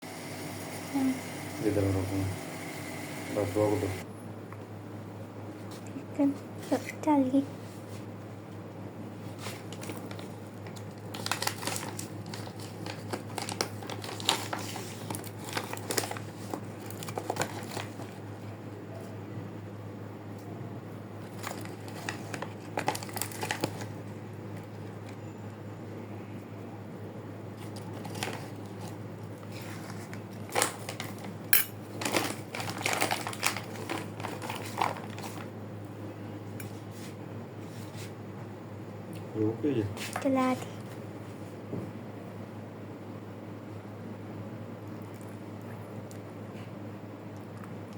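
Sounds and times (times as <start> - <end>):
crinkling and clicking handling noises: 9.3 - 18.2, 21.2 - 25.2, 27.6 - 35.5.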